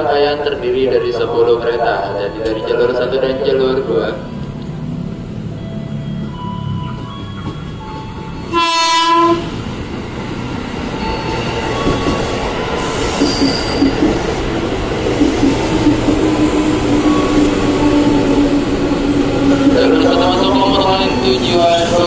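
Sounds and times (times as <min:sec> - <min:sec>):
train wheels on rails: 0:04.4 - 0:22.0
train horn blast: 0:08.5 - 0:09.6.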